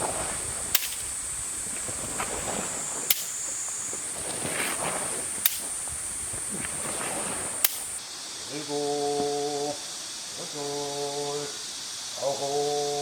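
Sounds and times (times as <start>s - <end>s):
bamboo clapper cracks: 0.7s - 1.3s, 3.1s - 3.6s, 5.4s - 6.0s, 7.6s - 8.0s.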